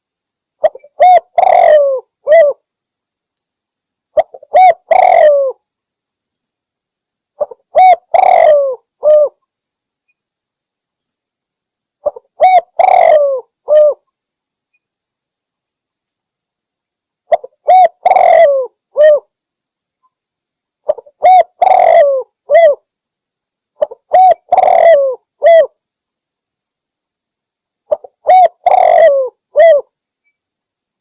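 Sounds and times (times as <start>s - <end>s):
dove cooing: 0.6s - 2.6s, 4.2s - 5.6s, 7.4s - 9.4s, 12.0s - 14.0s, 17.3s - 19.3s, 20.9s - 22.8s, 23.8s - 25.7s, 27.9s - 29.9s.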